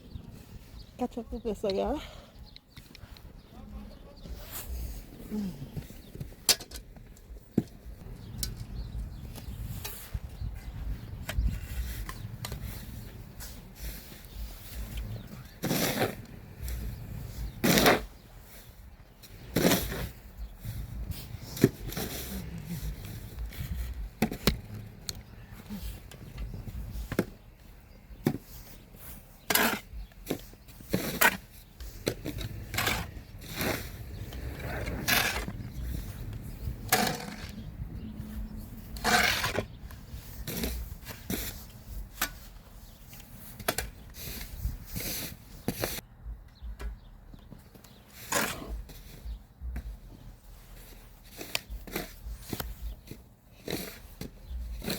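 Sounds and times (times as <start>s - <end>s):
snow shovel scraping snow: 12.6s - 24.3s, 28.3s - 37.6s, 38.9s - 43.5s, 44.2s - 46.0s, 50.5s - 54.9s.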